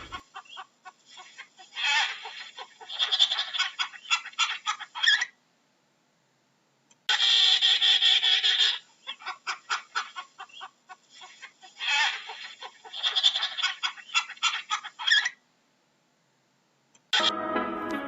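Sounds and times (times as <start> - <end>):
penguin honking call: 0.0 - 0.2.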